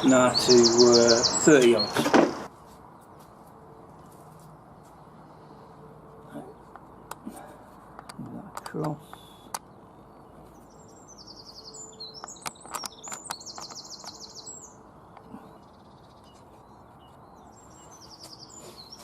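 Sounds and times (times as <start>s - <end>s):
songbird singing rapid trills: 0.0s - 2.2s, 8.0s - 19.0s
sharp clicks: 7.9s - 9.7s, 12.2s - 14.4s.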